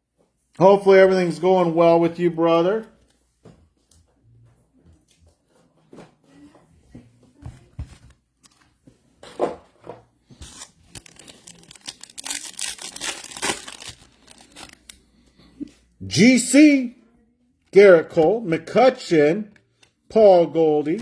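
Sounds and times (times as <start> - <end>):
cards clicking and rustling: 10.3 - 15.1
wrapper tearing and crinkling: 10.4 - 15.0.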